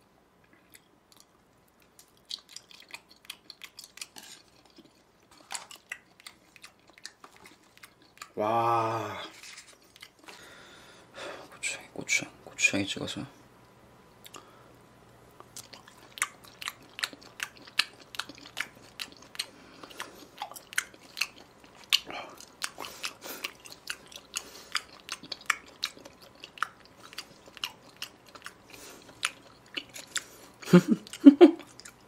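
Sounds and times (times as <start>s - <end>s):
wet chewing clicks and smacks: 0.4s - 8.4s, 9.7s - 10.4s, 14.2s - 14.4s, 15.4s - 32.0s.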